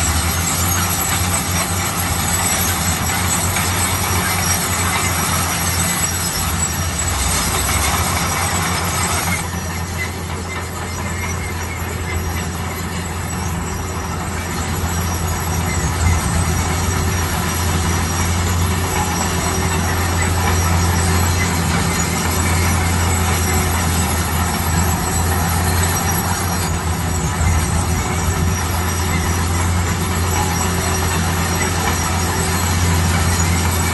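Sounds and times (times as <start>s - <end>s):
diesel engine running: 0.0s - 33.9s
high-pitched hiss and squeal: 0.0s - 33.9s.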